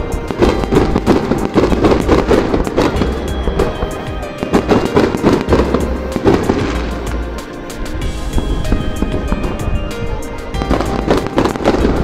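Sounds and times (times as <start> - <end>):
background music: 0.0 - 12.0
fireworks bursting and crackling: 0.0 - 12.0.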